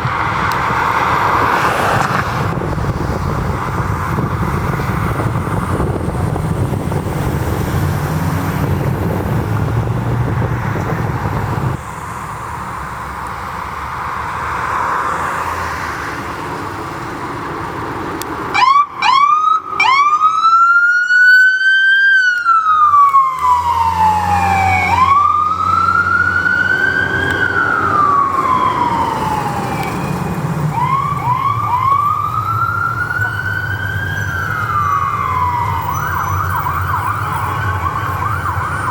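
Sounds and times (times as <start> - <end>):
road traffic noise: 0.0 - 38.9
vehicle engine rumbling: 0.0 - 38.9
emergency siren wailing: 18.5 - 38.9.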